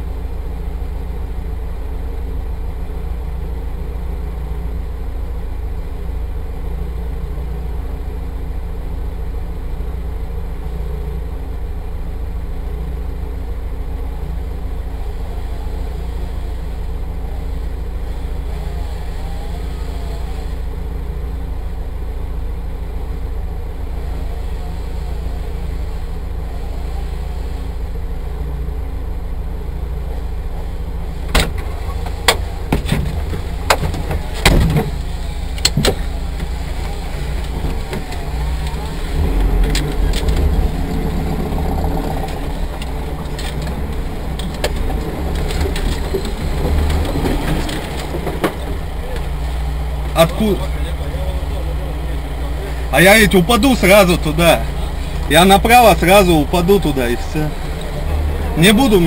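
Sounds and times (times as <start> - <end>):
vehicle engine idling: 0.0 - 59.0
muffled activity: 30.1 - 59.0
sharp knocks and clicks: 31.3 - 41.1, 42.2 - 49.4.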